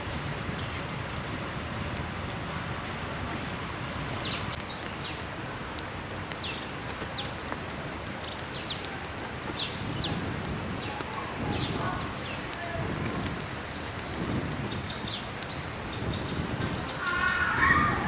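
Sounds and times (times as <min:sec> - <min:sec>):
creek running: 0:00.0 - 0:18.0
wild birds chirping: 0:04.0 - 0:18.0.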